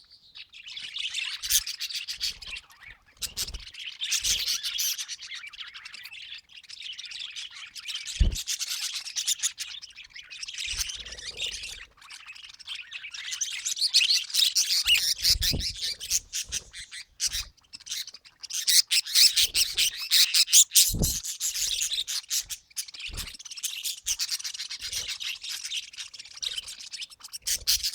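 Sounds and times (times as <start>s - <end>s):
budgerigars chattering: 0.6s - 27.9s.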